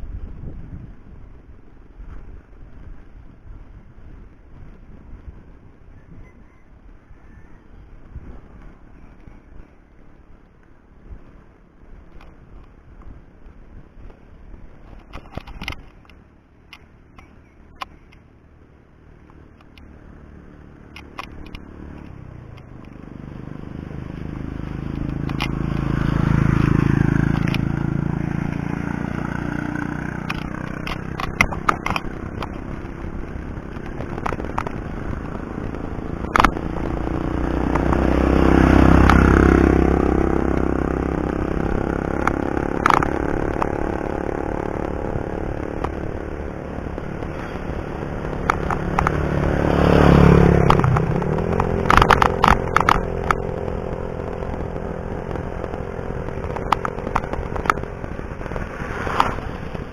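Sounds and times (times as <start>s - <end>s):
vehicles passing: 0.0s - 59.9s
sharp clicks and rattles: 14.8s - 18.2s, 19.2s - 19.9s, 20.8s - 23.1s, 24.6s - 59.9s.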